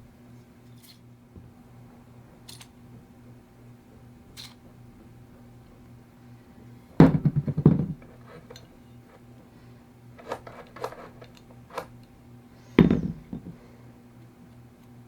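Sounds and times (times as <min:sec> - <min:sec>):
steady low hum: 0:00.0 - 0:15.0
hard objects clattering: 0:07.0 - 0:09.2, 0:10.2 - 0:11.9, 0:12.8 - 0:13.7.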